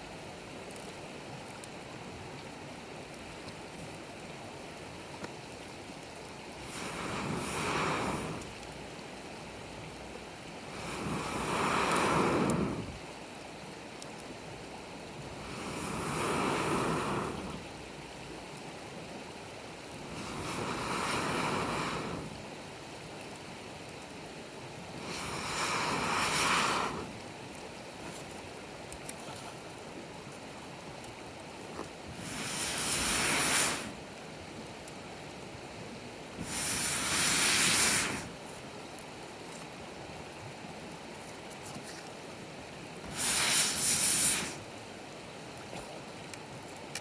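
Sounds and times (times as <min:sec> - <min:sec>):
campfire hissing: 0:00.4 - 0:47.0
breath blowing into fire: 0:06.6 - 0:08.6, 0:10.6 - 0:13.0, 0:15.3 - 0:17.6, 0:20.1 - 0:22.4, 0:24.9 - 0:27.2, 0:32.1 - 0:34.0, 0:36.4 - 0:38.4, 0:43.0 - 0:44.7.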